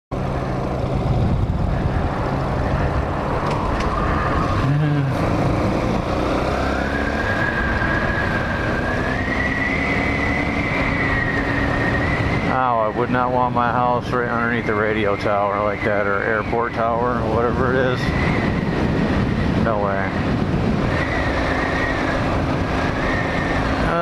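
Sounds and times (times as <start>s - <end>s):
motorcycle running: 0.1s - 24.0s
wind on microphone: 0.5s - 6.4s, 10.5s - 24.0s.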